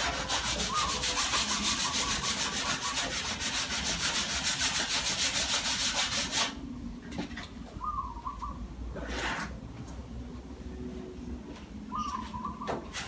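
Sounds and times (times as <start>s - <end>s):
sandpaper rubbing on filler: 0.0s - 6.6s.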